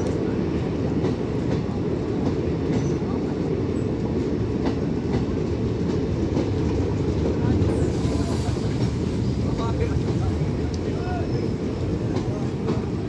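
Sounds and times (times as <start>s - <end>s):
train low rumble: 0.0s - 13.0s
sharp clicks from coaches: 9.6s - 11.0s.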